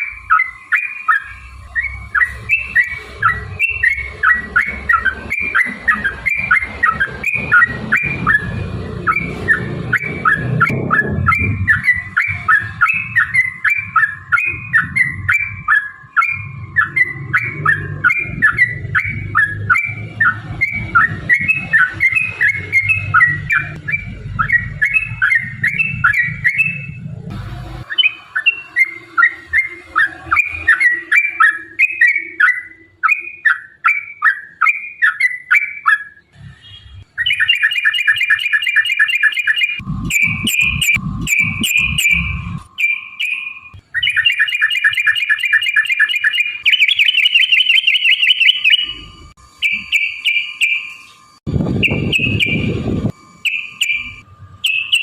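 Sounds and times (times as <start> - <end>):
bird singing bubbly notes: 0.0 - 27.1, 27.8 - 55.0
low background rumble: 39.8 - 42.7.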